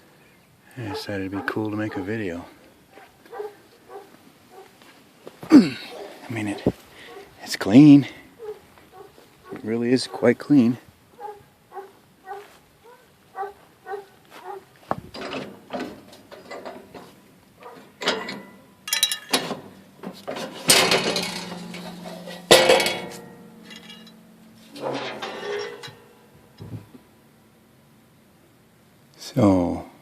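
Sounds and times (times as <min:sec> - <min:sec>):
metal clanks and rattles: 0:14.9 - 0:27.1
loud ringing metal bangs: 0:18.0 - 0:27.2.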